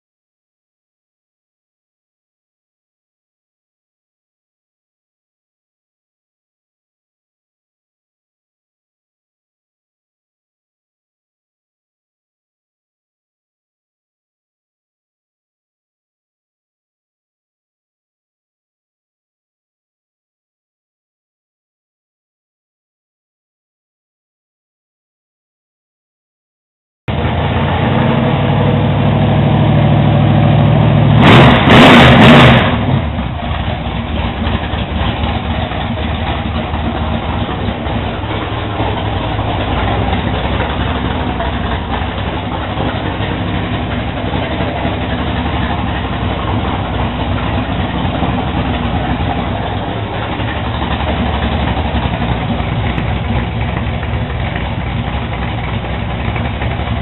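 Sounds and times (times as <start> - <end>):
car engine running: 27.1 - 57.0.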